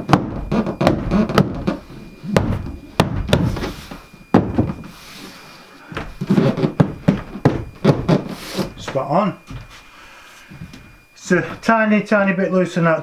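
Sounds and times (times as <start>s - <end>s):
wall panel knocks and thuds: 0.0s - 4.9s, 5.9s - 9.7s
board rubbing and scraping: 6.2s - 8.8s.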